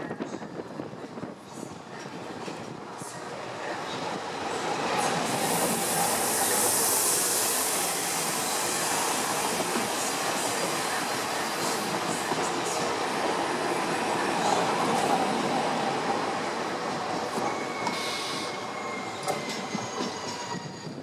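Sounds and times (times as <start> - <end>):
train wheels rumbling on rails: 0.0 - 21.0
strong hiss: 5.1 - 11.9.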